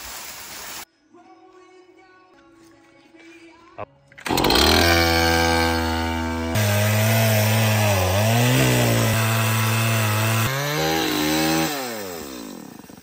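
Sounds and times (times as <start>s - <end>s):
chainsaw cutting wood: 4.2s - 13.0s.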